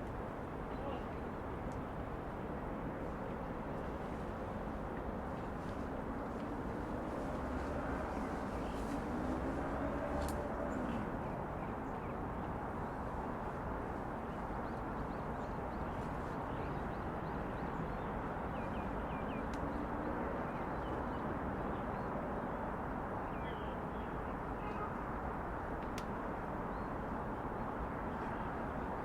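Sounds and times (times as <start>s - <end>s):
city traffic hum: 0.0s - 29.0s
vehicle engine passing: 6.4s - 11.4s.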